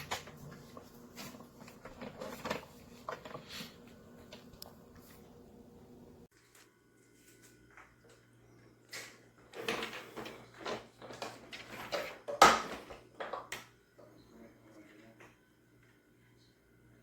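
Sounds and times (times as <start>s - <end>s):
handling scrapes and rattles: 0.0s - 5.5s.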